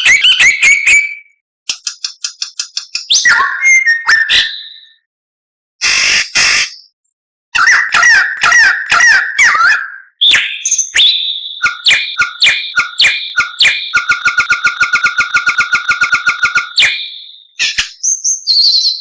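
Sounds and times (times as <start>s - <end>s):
bird song: 0.0s - 5.1s, 6.7s - 8.2s, 9.0s - 14.0s, 16.8s - 19.0s.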